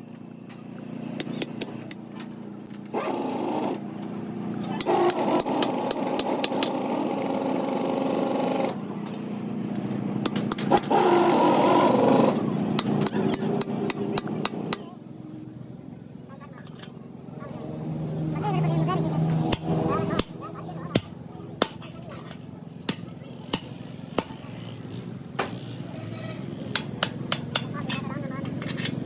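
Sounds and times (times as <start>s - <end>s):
metallic taps and clicks: 1.2s - 2.3s, 10.2s - 10.9s, 12.8s - 14.9s
power tool on metal: 2.9s - 3.8s, 4.8s - 8.8s, 10.2s - 14.8s.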